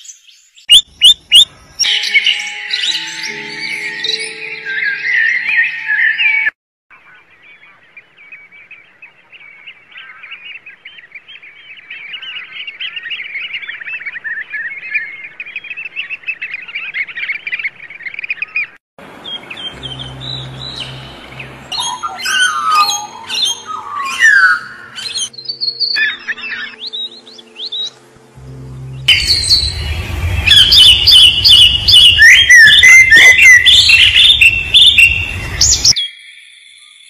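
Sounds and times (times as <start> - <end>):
birds chirping and twittering: 0.0 - 37.0
low steady hum: 27.0 - 35.8.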